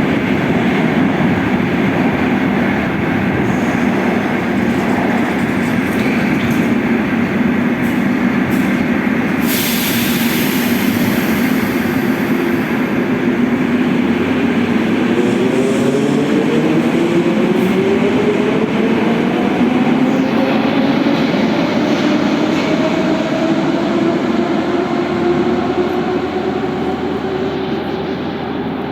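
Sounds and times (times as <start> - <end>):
train rumbling: 0.0 - 28.9
air hissing: 7.8 - 13.1.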